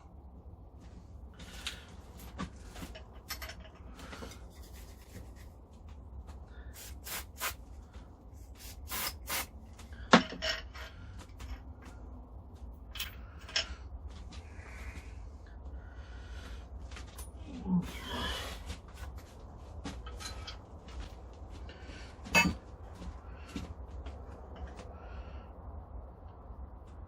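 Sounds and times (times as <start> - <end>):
metal parts rubbing and scraping: 2.6 - 5.6.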